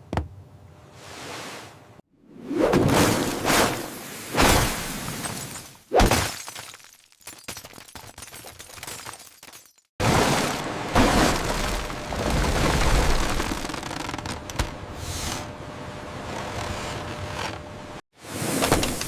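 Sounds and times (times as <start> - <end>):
small clatters and crackles: 11.5 - 14.7.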